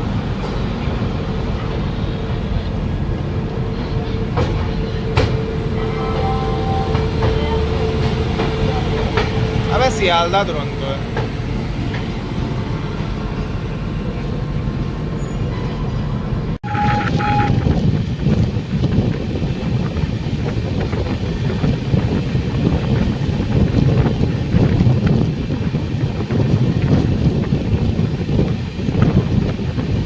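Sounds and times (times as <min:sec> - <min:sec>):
locomotive horn blast: 0:00.0 - 0:11.6, 0:16.6 - 0:18.3
train wheels rumbling on rail: 0:00.0 - 0:30.0.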